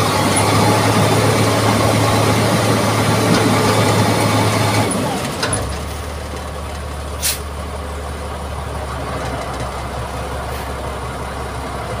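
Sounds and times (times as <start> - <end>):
diesel engine humming: 0.0 - 12.0
brief hiss: 7.2 - 7.5.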